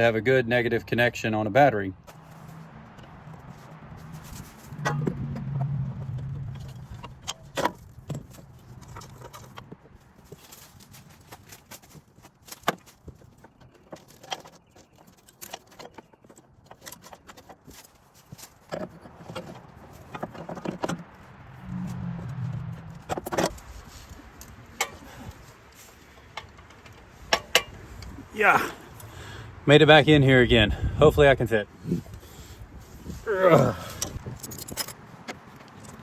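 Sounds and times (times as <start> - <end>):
low droning hum: 2.3 - 7.5, 21.4 - 24.2
metal tools clinking: 33.8 - 36.0.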